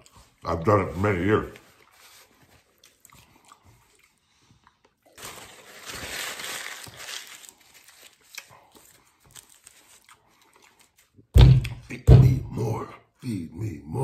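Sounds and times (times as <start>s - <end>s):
man chewing food: 0.0s - 5.6s, 7.4s - 11.9s.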